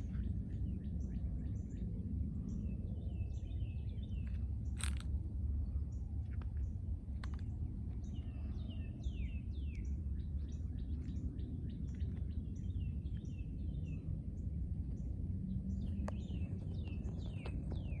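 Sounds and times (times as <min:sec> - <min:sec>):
low rumble: 0:00.0 - 0:18.0
songbirds chirping: 0:00.0 - 0:18.0.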